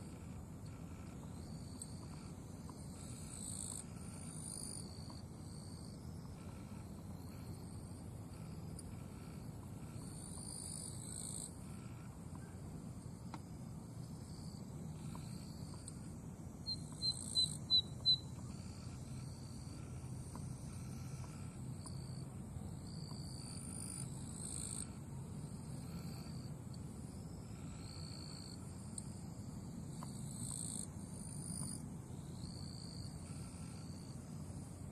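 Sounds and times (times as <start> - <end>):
bird song of sharp high notes: 16.6 - 18.5.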